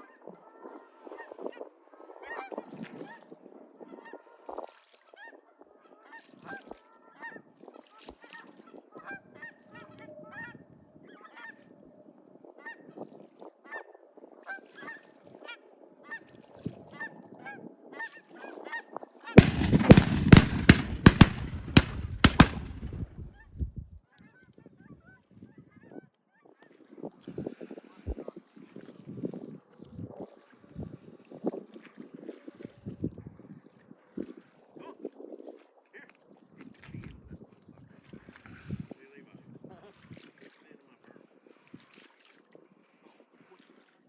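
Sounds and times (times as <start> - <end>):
rough burst with sharp pops: 19.4 - 23.5.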